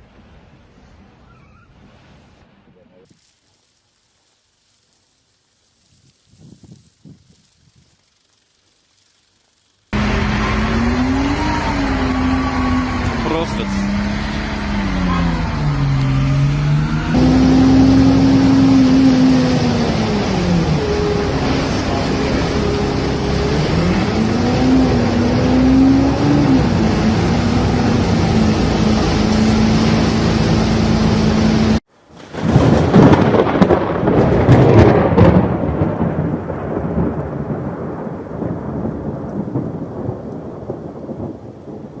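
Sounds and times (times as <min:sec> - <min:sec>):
steady rushing noise: 0:03.1 - 0:31.8
engine running: 0:08.1 - 0:31.9
loud rumbling: 0:10.0 - 0:41.4.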